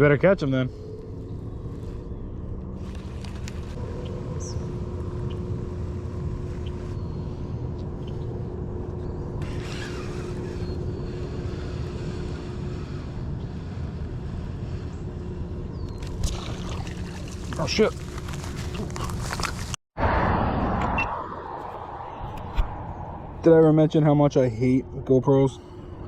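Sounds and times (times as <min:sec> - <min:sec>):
faint steady hum: 0:00.0 - 0:19.8
low steady rumble: 0:00.0 - 0:26.0.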